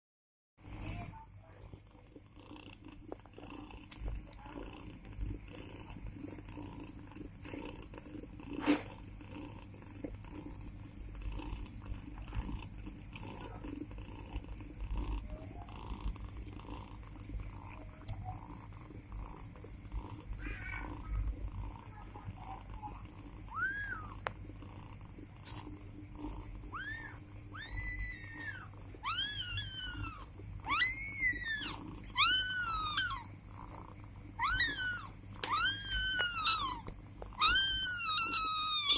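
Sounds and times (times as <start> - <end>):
cat purring: 0.6 - 38.9
kittens mewing: 20.2 - 21.4, 22.0 - 24.2, 26.6 - 33.4, 34.3 - 38.9.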